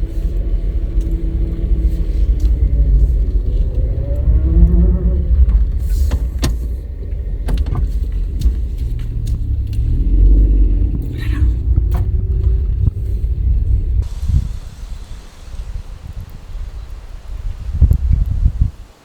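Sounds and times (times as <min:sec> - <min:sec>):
vehicle engine rumble: 0:00.0 - 0:19.0
faint hiss: 0:14.0 - 0:19.0.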